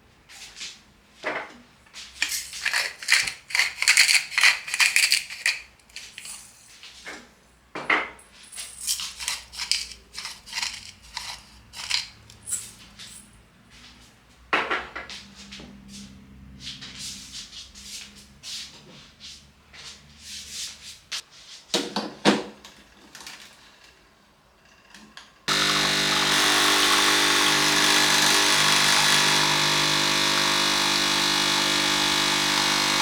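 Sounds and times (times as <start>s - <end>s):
objects rustling and clinking: 2.1s - 13.4s.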